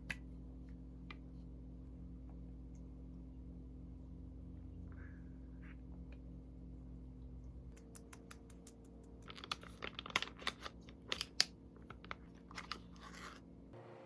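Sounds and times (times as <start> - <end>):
steady low hum: 0.0 - 14.0
sharp clicks and crinkles: 7.7 - 13.4.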